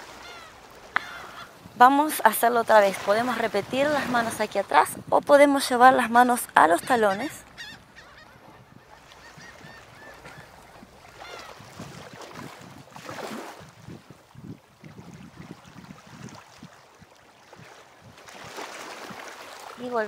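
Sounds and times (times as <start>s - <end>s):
bird calls: 0.1s - 1.6s, 6.6s - 11.7s.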